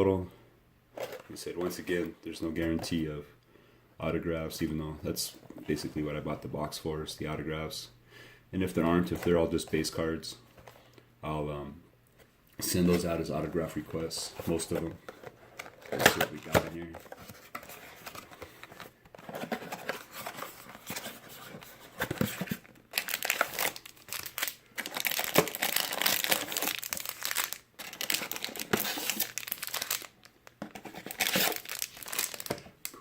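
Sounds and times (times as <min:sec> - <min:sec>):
plastic wrapping crinkling: 0:13.0 - 0:33.0
cardboard tearing: 0:19.2 - 0:30.1, 0:30.7 - 0:32.6.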